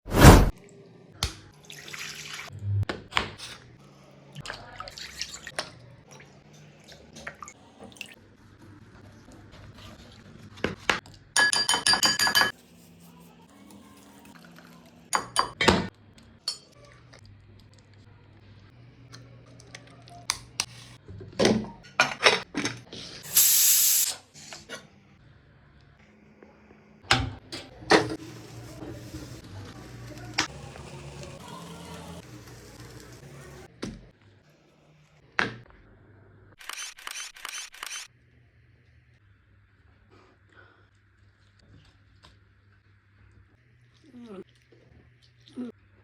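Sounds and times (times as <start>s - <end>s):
metal cookware clinking: 11.4s - 12.5s
short hiss: 23.3s - 24.2s.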